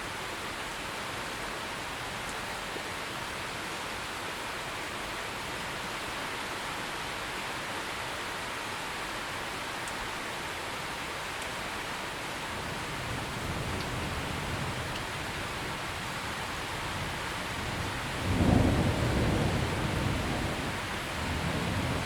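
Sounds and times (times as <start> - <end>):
heavy rain: 0.0 - 22.0
low rumbling thunder: 13.0 - 22.0.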